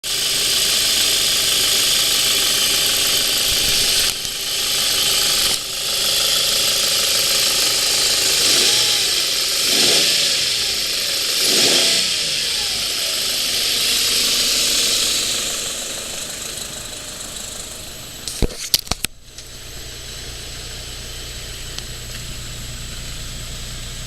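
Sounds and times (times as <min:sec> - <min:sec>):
loud steady hiss: 0:00.1 - 0:18.3
car engine revving: 0:00.1 - 0:24.0.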